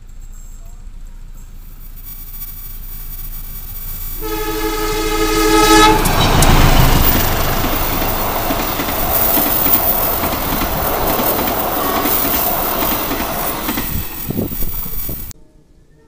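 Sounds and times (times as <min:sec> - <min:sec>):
train wheels rumbling on rails: 0:02.0 - 0:15.3
wheels clacking over rail joints: 0:03.4 - 0:15.3.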